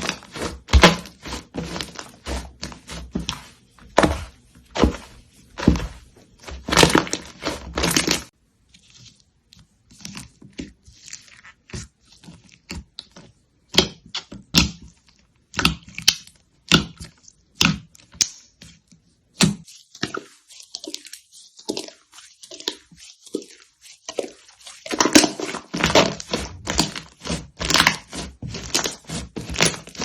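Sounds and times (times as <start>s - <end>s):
slime squished by hand: 19.4s - 30.0s.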